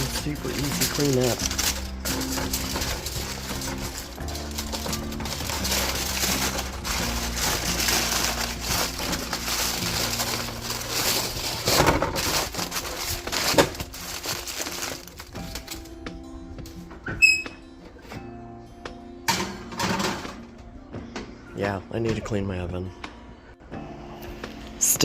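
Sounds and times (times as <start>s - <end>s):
baking liner crinkling: 0.0s - 16.0s.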